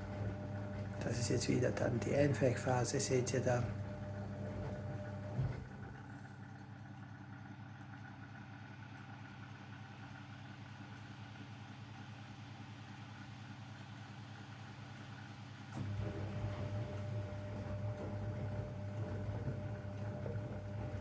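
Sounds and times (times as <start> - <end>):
washing machine humming: 0.0 - 9.7, 15.8 - 21.0.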